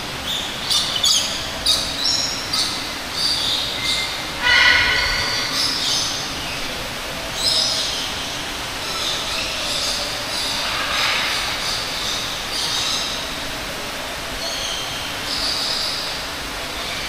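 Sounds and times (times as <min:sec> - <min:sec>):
birds screeching: 0:00.3 - 0:13.6.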